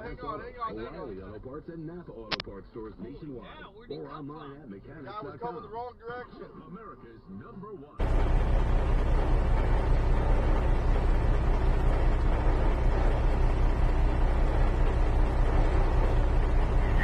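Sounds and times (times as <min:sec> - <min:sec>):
car engine and road noise: 0:08.0 - 0:17.0.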